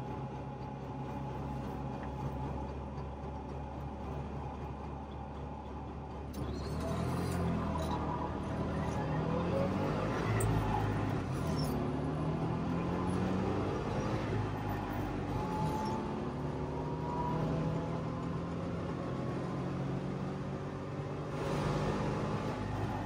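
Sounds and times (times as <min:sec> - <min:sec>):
two-stroke car engine running: 0:00.0 - 0:17.0.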